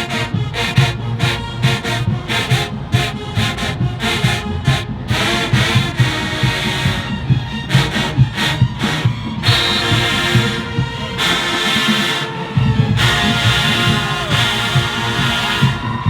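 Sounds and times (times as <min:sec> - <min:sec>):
marching band brass and drums: 0:00.0 - 0:16.0.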